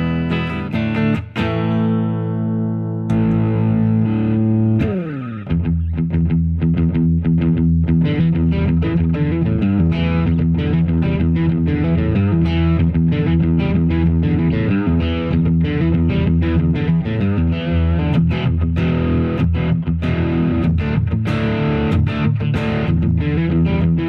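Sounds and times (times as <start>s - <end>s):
distorted electric guitar: 0.0s - 24.0s.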